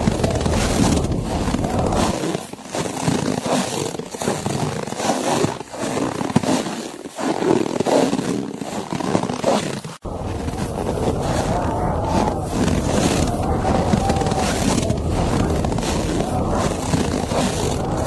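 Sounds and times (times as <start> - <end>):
deep wind rumble: 0.0 - 2.2, 10.0 - 18.0
footsteps crunching snow: 10.1 - 18.0.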